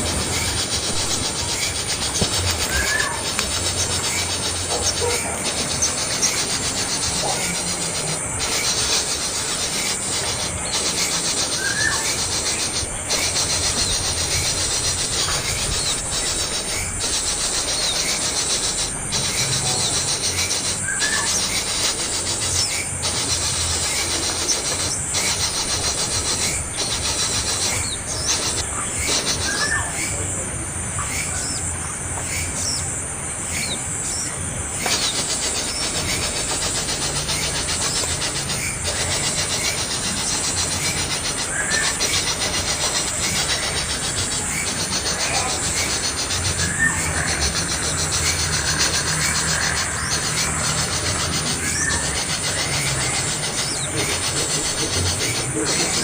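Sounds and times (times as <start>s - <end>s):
young bird rasping begging calls: 0.3s - 30.0s.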